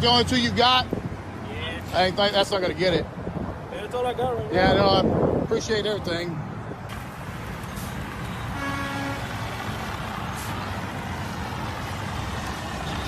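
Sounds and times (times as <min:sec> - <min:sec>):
car horn toot: 0:08.4 - 0:09.3.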